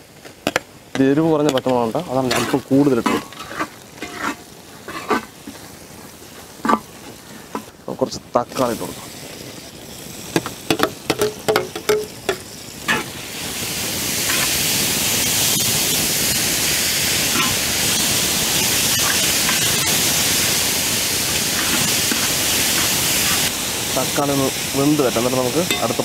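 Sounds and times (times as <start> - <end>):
tomatoes sizzling in hot oil: 0.0 - 26.0
metal spoon scraping a metal pan: 2.2 - 5.3, 12.9 - 13.1, 14.2 - 14.6, 17.3 - 17.6, 18.9 - 20.0, 21.4 - 23.5, 25.6 - 26.0.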